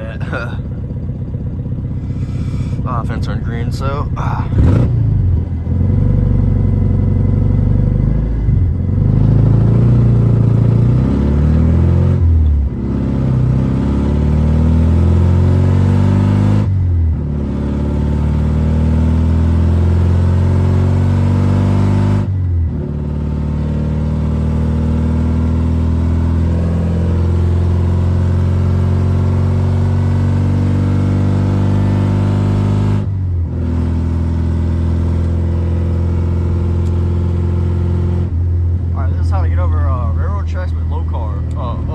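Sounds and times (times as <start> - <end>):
car engine accelerating: 0.0 - 41.9.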